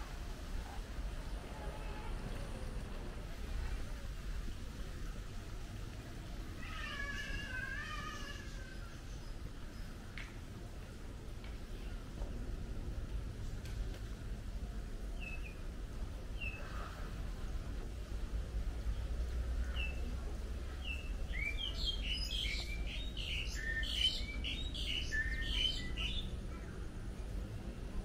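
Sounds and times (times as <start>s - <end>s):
birds chirping: 18.9s - 26.8s.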